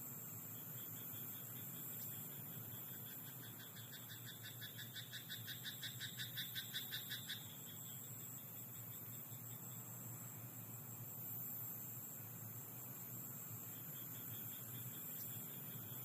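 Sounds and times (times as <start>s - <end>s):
faint night-time hiss: 0.0s - 16.0s
frog croaking: 2.9s - 7.9s.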